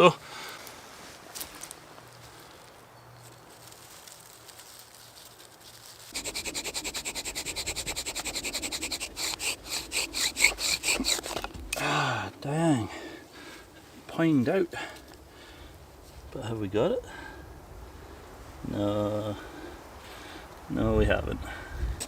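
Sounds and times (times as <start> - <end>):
bow drill squeaky rubbing: 6.1 - 11.8.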